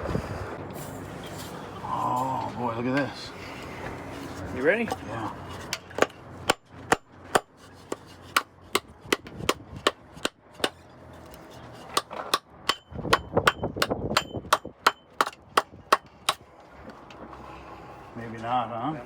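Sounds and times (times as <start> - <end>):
hammer striking metal fitting: 12.0 - 16.4.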